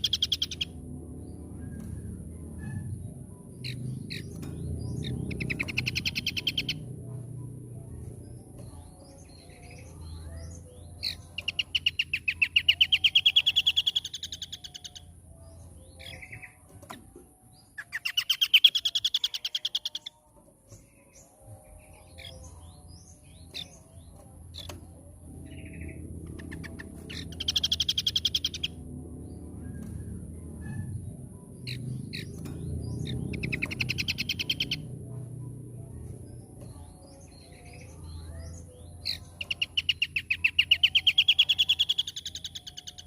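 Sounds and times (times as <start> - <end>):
bird rapid rising trill: 25.4 - 28.8.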